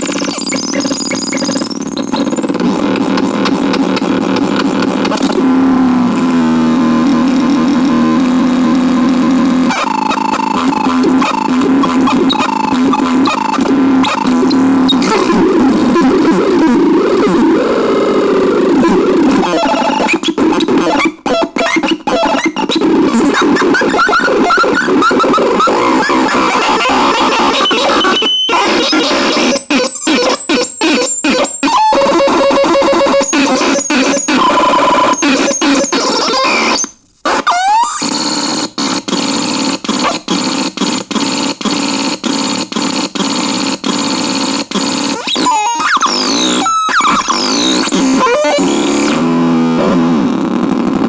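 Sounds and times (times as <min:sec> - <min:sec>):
quick rising electronic chirps: 0:00.0 - 0:02.5, 0:26.8 - 0:35.9
harsh noisy synthesizer tones: 0:00.0 - 0:51.0.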